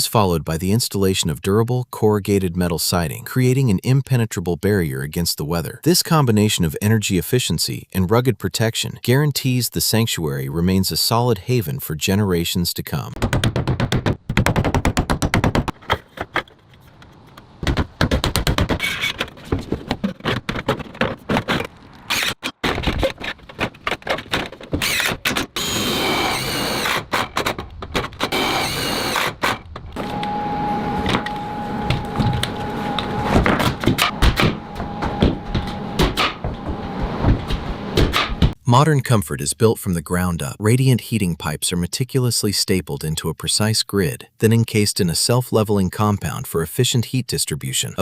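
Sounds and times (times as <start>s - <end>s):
rapid knocks and taps: 13.2s - 16.5s, 17.6s - 21.5s
high whine: 30.0s - 38.5s.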